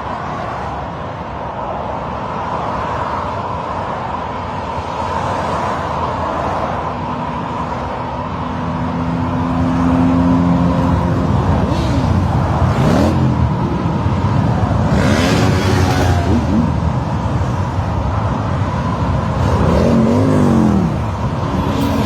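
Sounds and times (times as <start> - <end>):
motorcycles passing by: 9.0 - 22.0
motorcycle engines revving: 9.1 - 22.0.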